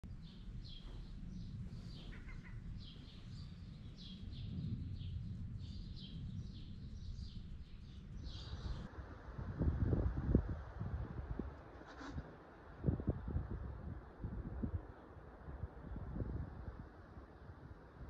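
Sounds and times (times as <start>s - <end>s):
low continuous rumble: 0.0s - 18.0s
small birds chirping: 0.1s - 8.9s.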